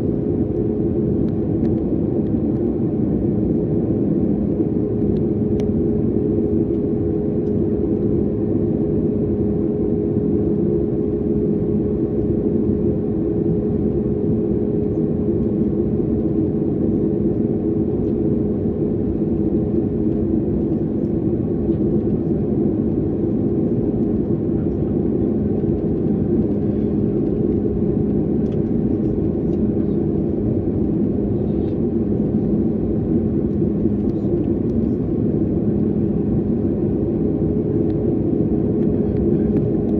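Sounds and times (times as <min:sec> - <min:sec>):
jet airliner cabin noise: 0:00.0 - 0:39.9.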